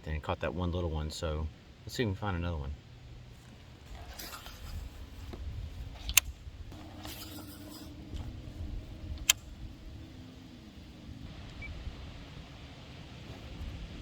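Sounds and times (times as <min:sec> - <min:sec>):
sharp clicks: 0:09.2 - 0:09.5.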